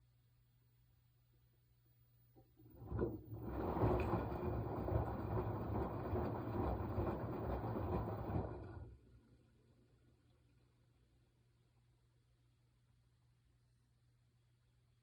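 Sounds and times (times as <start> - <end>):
washing machine drum turning: 2.6 - 9.0.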